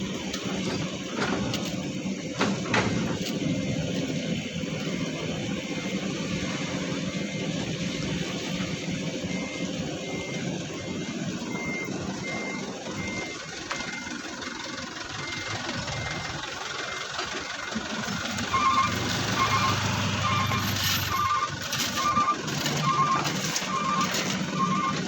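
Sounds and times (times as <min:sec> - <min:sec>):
low diesel engine: 0:00.0 - 0:25.0
low reversing alarm beeping: 0:00.4 - 0:25.0
high reversing alarm beeping: 0:08.1 - 0:25.0.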